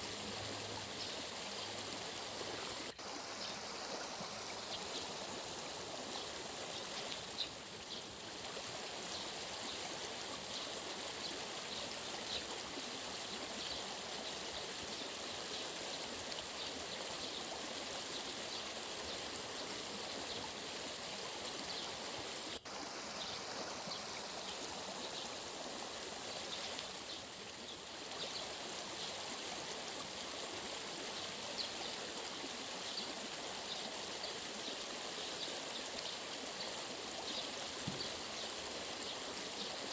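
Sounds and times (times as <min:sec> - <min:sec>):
stream of running water: 0:00.0 - 0:39.9.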